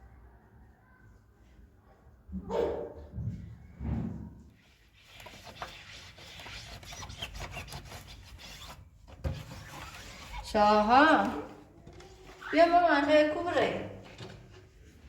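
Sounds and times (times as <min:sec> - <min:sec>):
rubbing and scraping with ticks: 0:04.6 - 0:13.4.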